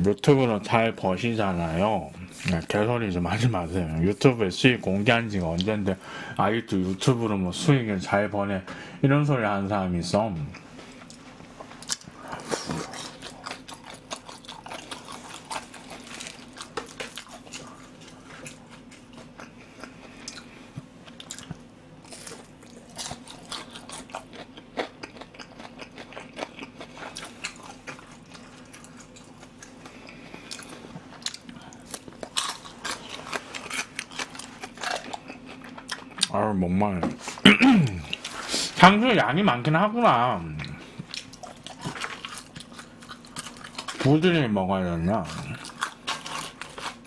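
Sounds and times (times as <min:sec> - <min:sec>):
crunching and chewing: 0:10.4 - 0:36.4, 0:40.4 - 0:44.4, 0:45.1 - 0:47.0.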